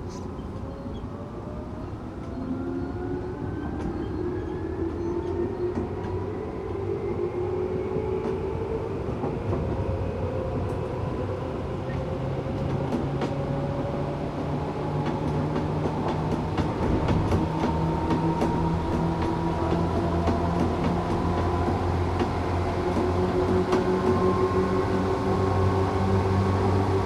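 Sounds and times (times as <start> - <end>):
train low rumble: 0.0 - 27.0
wheels clicking over rail joints: 12.5 - 26.2.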